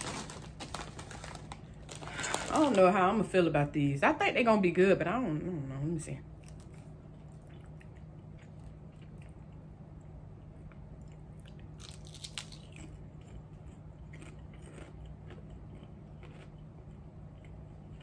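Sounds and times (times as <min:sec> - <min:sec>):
potato chips crunched and chewed: 0:00.0 - 0:02.9, 0:06.4 - 0:09.5, 0:11.0 - 0:16.6.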